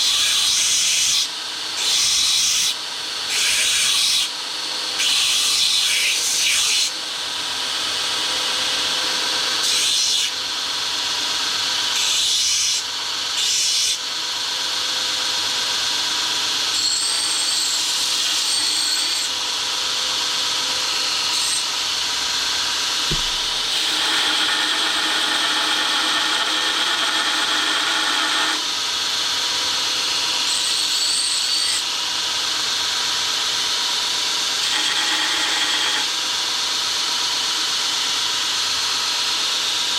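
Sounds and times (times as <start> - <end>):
grinder grinding steel: 16.7 - 28.8.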